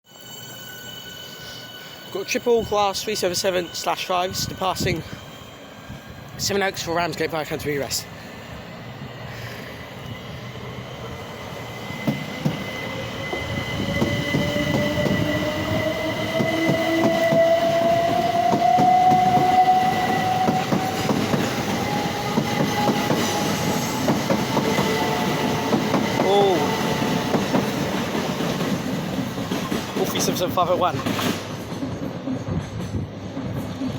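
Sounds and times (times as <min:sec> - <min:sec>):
wheels clattering on rails: 0:16.3 - 0:33.9.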